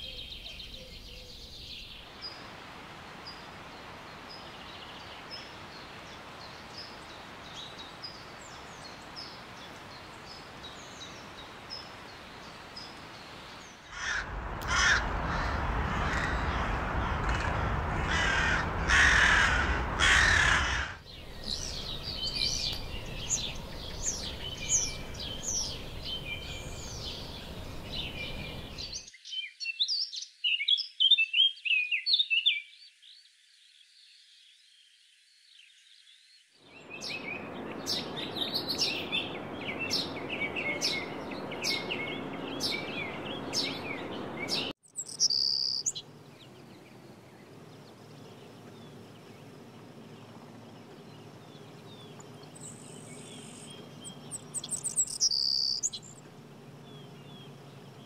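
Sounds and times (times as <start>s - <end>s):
steady hiss: 21.0s - 29.0s.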